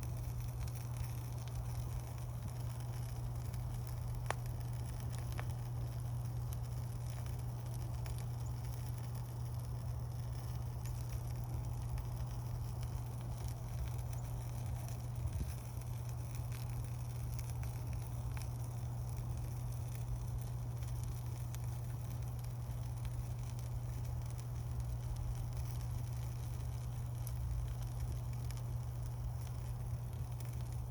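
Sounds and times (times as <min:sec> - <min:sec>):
campfire crackling and popping: 0:00.0 - 0:30.9.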